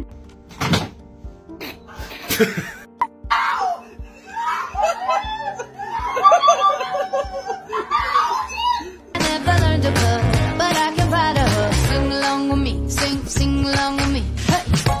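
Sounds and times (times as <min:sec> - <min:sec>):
background music with a beat: 0:09.1 - 0:15.0.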